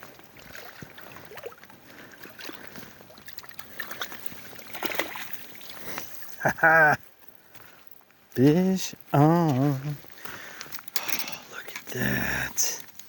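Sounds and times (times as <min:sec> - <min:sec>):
water splashing and sloshing: 0:00.0 - 0:06.4.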